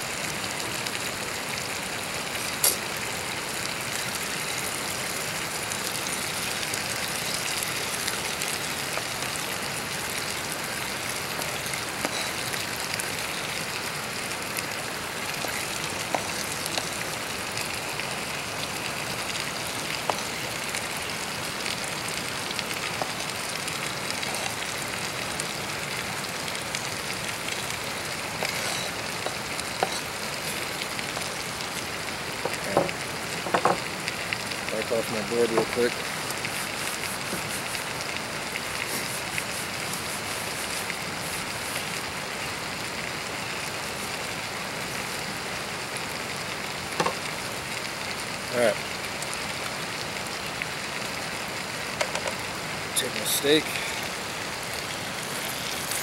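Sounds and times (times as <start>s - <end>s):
steak and onions sizzling: 1.6s - 45.8s.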